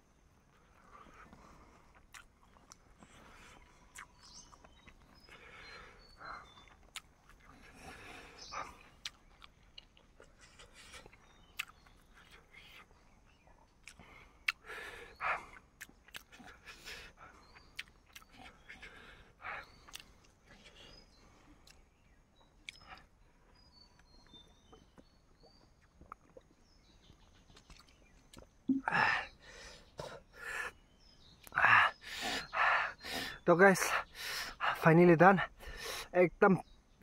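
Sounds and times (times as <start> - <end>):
faint high chirps: 0.0 - 31.6
chewing with mouth smacks: 0.5 - 12.8, 13.6 - 14.7, 15.4 - 19.0, 19.6 - 21.0, 22.6 - 23.2, 24.0 - 28.9
breathy sound: 28.7 - 30.7.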